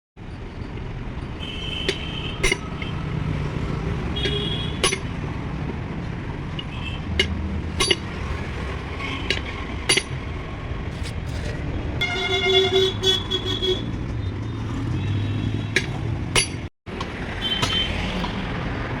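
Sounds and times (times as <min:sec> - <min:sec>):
sharp metallic clinks: 0:15.8 - 0:16.7.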